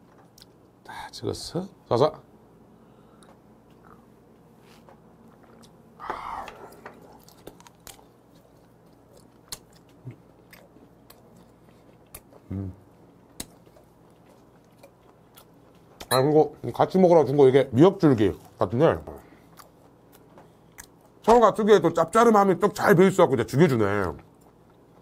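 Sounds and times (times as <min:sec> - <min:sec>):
person chewing: 0:04.9 - 0:16.1, 0:19.4 - 0:21.2
breathy sound: 0:06.0 - 0:07.0
low voice hum: 0:12.4 - 0:13.0.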